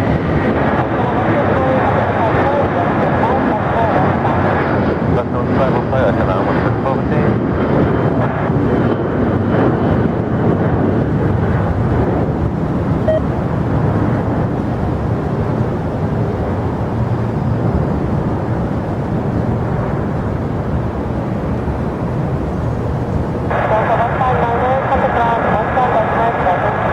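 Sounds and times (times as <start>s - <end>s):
jet airliner engine roar: 0.0s - 26.9s.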